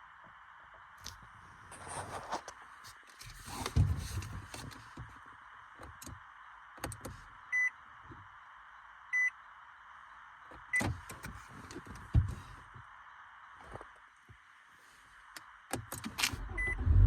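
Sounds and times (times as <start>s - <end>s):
short electronic beeps: 16.4s - 17.0s.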